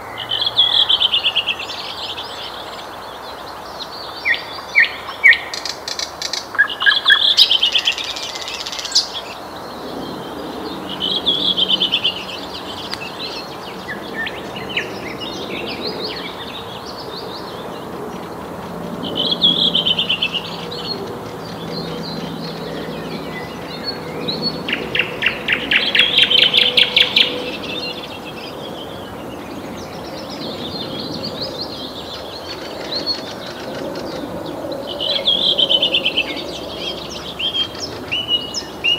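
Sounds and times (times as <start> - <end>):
nightingale singing: 11.0 - 33.6.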